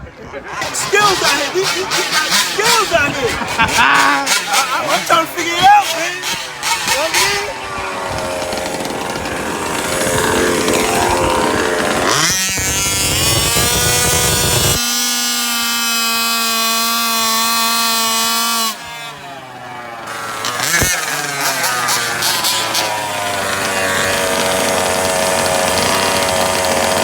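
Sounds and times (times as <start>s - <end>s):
small two-stroke engine revving: 0.6s - 27.0s.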